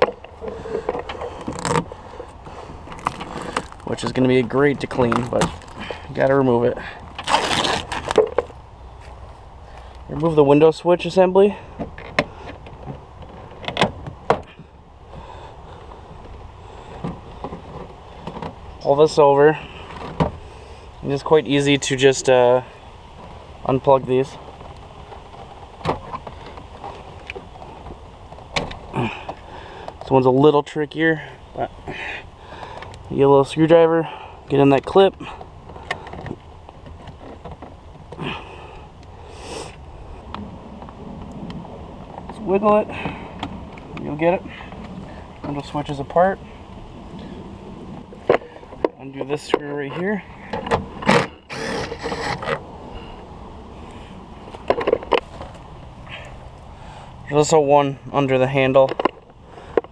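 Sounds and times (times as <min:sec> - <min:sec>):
person sniffing: 0:39.3 - 0:39.8
plastic clicks and scrapes: 0:50.6 - 0:52.6.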